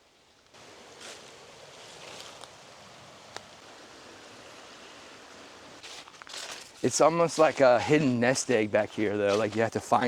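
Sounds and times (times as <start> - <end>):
rushing water: 0.6 - 5.8.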